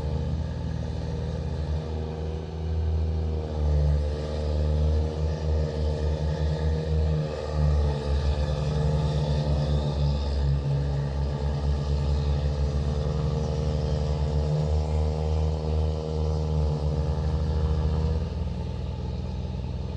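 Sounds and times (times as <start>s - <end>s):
tractor diesel engine running: 10.0s - 19.9s.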